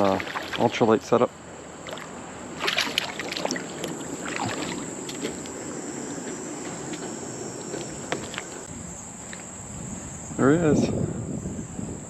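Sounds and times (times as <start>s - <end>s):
insect trill: 0.0s - 12.0s
river water rushing: 1.8s - 8.7s.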